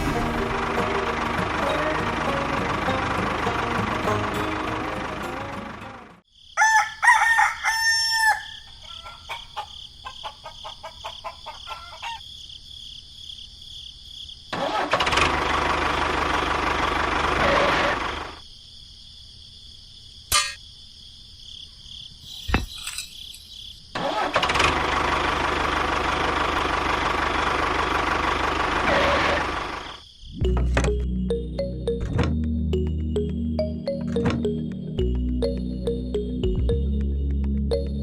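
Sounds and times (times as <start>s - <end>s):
loud mechanical noise: 0.0s - 6.1s, 14.5s - 18.4s, 24.0s - 30.0s
rooster crowing: 6.6s - 12.3s.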